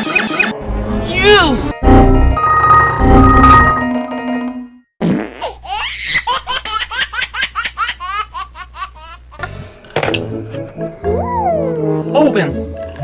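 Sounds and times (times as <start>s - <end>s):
musical sound-effect tone: 1.8s - 4.7s.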